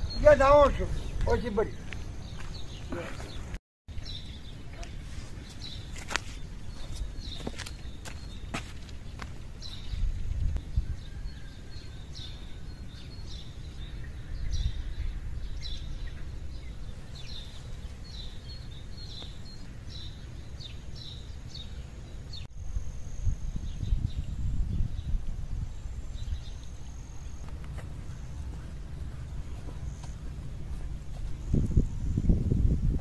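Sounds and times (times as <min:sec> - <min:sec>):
small birds chirping: 0:00.0 - 0:33.0
low noisy rumble: 0:11.6 - 0:33.0.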